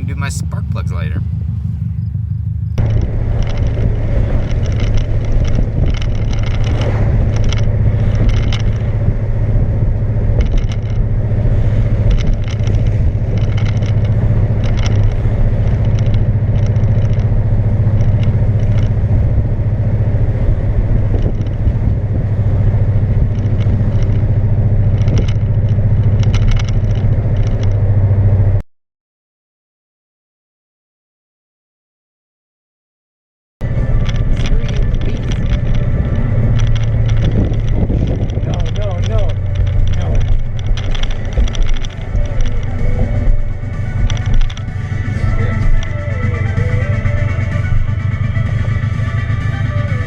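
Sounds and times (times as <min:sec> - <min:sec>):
loud car engine droning: 0:00.0 - 0:28.6, 0:33.6 - 0:50.0.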